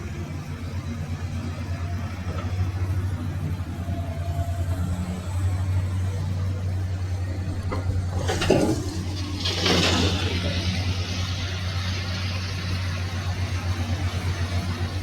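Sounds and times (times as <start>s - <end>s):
heavy vehicle engine rumbling: 0.0s - 15.0s.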